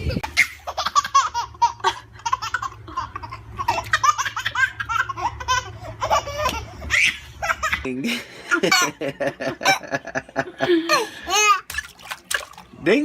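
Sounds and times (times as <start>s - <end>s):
baby laughing: 0.0s - 11.8s.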